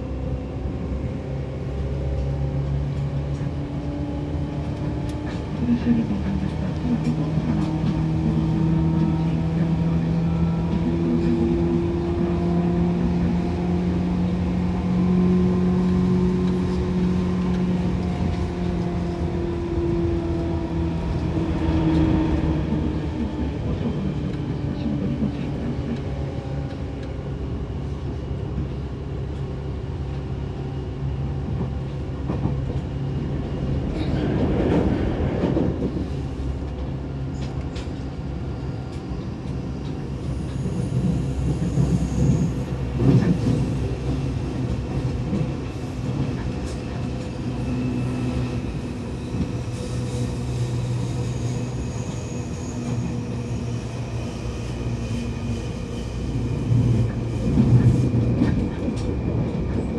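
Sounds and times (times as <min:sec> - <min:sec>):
train running gear rumble: 0:00.0 - 0:59.9.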